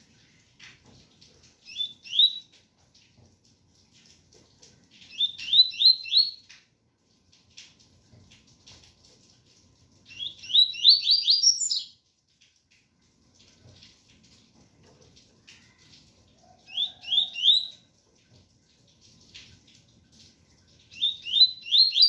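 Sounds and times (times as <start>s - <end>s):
soft scratchy bird twittering: 10.1s - 12.0s, 21.0s - 22.0s.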